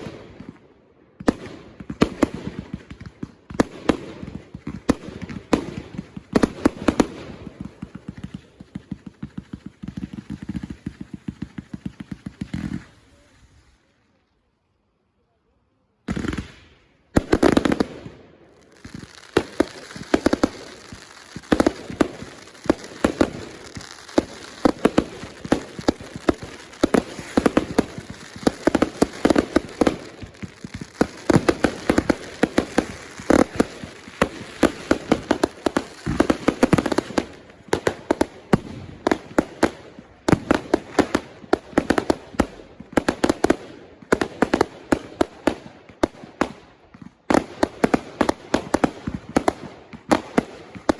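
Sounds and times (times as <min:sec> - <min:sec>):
fireworks banging: 0:01.2 - 0:13.3, 0:16.1 - 0:50.9.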